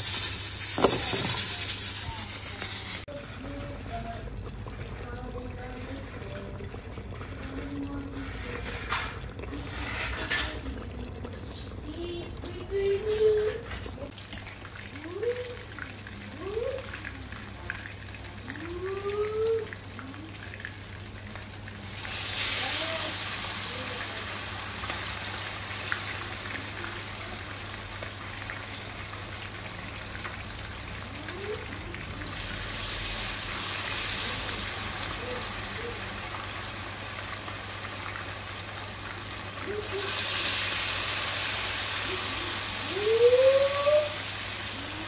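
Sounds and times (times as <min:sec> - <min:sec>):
food sizzling in hot oil: 0:00.0 - 0:03.1, 0:14.1 - 0:45.0.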